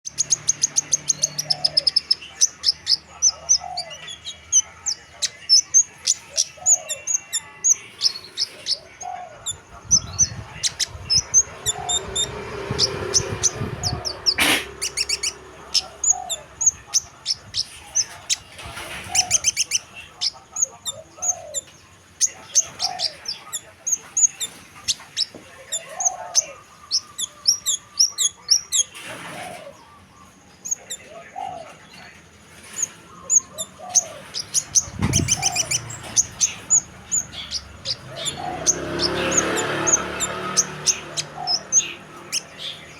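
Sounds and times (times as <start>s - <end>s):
high chirps and trills: 0.0s - 18.5s
bird hooting: 1.1s - 10.0s, 33.2s - 42.7s.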